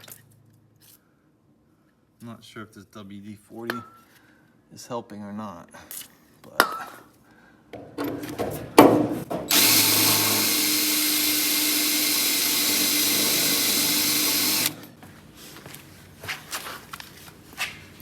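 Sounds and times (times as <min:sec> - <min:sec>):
electric drill boring into steel: 0:09.5 - 0:14.9.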